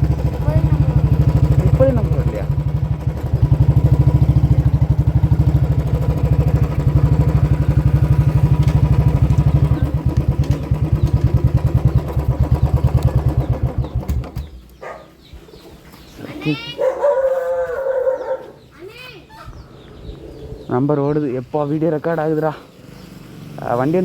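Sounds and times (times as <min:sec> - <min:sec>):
motorcycle engine idling: 0:00.0 - 0:15.6, 0:21.8 - 0:24.0.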